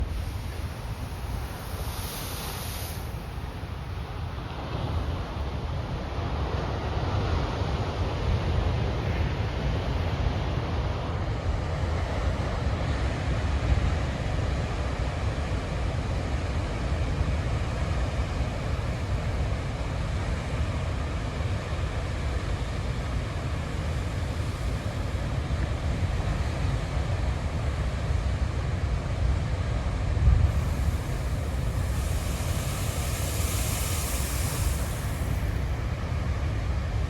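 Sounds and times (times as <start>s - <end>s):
ocean waves breaking: 0.0s - 6.0s, 30.5s - 37.0s
wind rumble on microphone: 22.0s - 37.0s.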